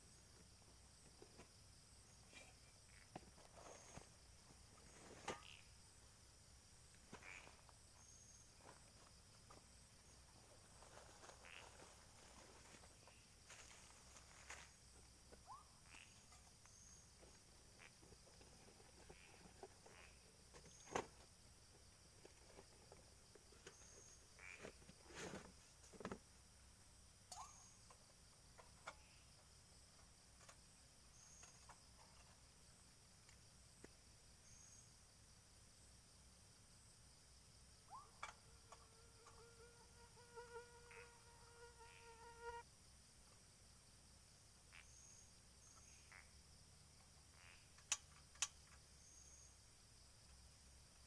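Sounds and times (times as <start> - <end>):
flying insect buzzing: 7.1 - 7.7, 11.4 - 12.0, 24.0 - 24.7, 38.4 - 42.7.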